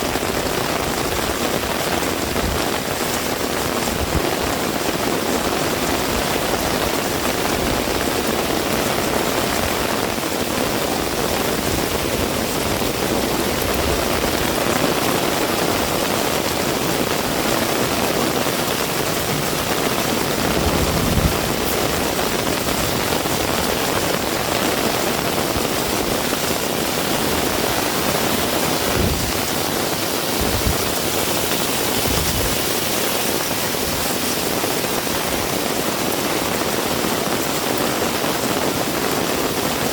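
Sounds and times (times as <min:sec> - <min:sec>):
heavy rain hiss: 0:00.0 - 0:39.9
low thuds: 0:18.9 - 0:23.1.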